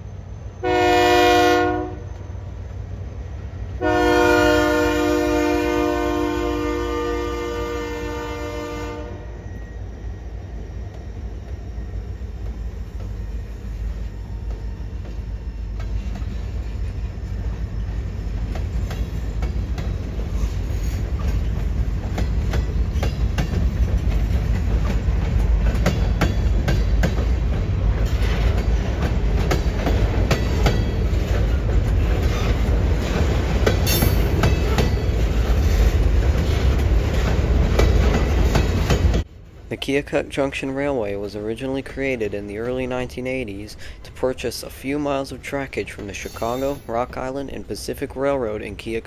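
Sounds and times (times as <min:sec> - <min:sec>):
freight train rumbling past: 0:00.0 - 0:49.0
wheels clicking over rail joints: 0:12.3 - 0:42.8.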